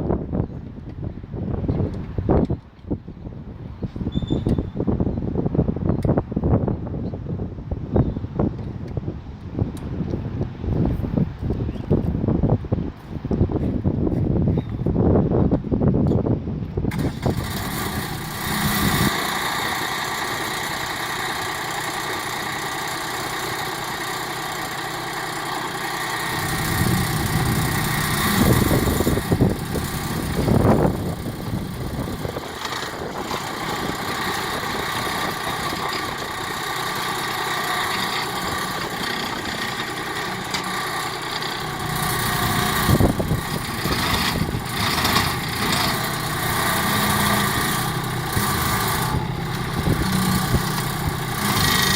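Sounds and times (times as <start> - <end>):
diesel tractor engine running: 16.9 - 51.9.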